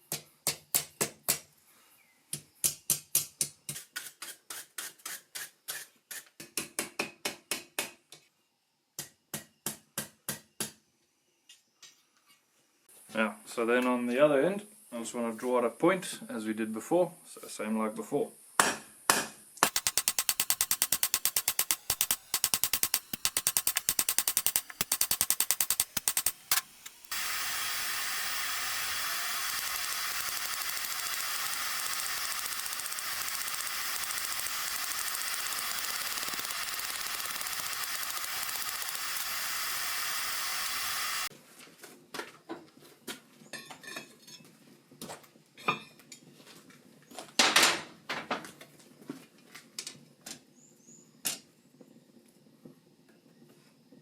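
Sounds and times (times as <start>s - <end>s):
steady hiss: 19.5s - 41.3s.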